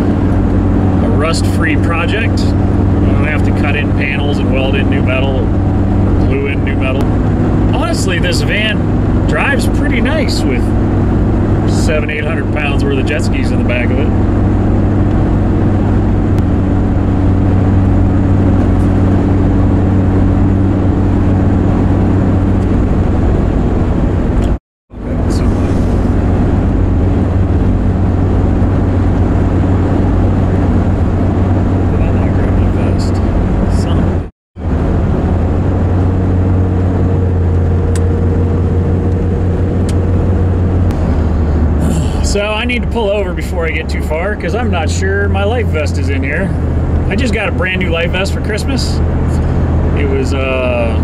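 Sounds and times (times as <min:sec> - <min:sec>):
road and tyre noise: 0:00.0 - 0:51.0
van engine hum: 0:00.0 - 0:51.0.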